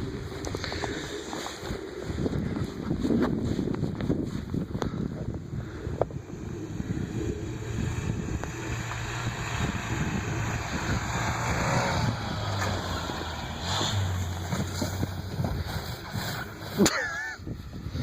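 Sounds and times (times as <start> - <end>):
truck engine humming: 5.8 - 16.9.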